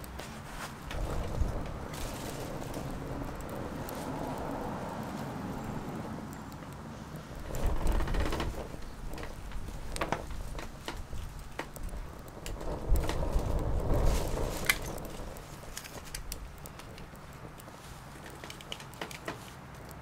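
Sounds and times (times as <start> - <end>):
wood fire crackling: 0.0 - 20.0
low rumble: 0.9 - 5.9.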